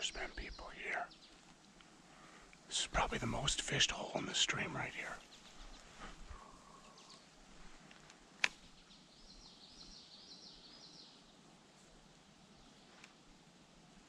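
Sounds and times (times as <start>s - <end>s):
small bird singing: 0.0s - 1.5s, 2.7s - 7.4s, 8.5s - 11.5s
creek-side ambience: 0.0s - 10.2s.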